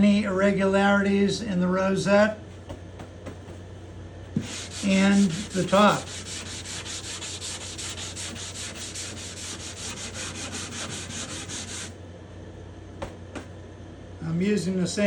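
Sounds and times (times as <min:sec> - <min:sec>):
sandpaper rubbing wood: 0:04.4 - 0:12.0.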